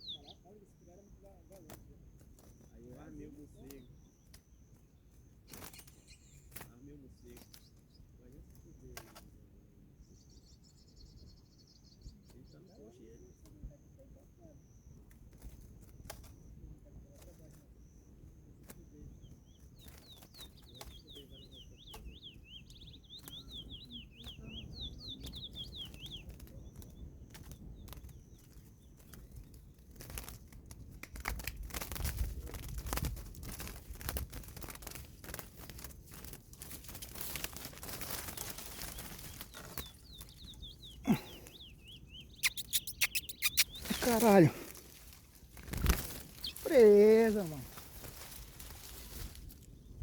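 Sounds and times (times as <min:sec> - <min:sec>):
finch singing: 0:00.0 - 0:08.9, 0:16.0 - 0:29.5, 0:36.9 - 0:50.0
rustling and crinkling: 0:26.2 - 0:50.0.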